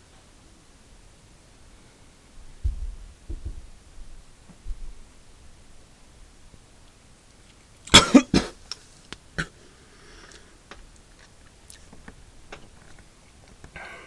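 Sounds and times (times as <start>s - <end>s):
person coughing: 7.9s - 8.6s.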